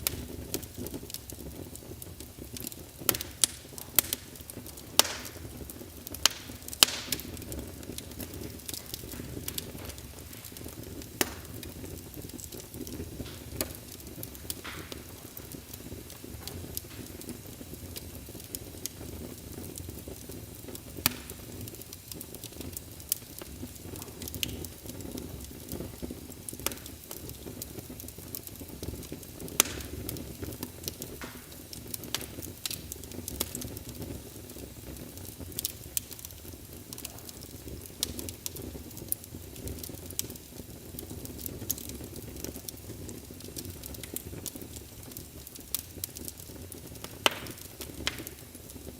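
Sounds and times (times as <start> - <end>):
wood fire crackling and popping: 0.0 - 48.9.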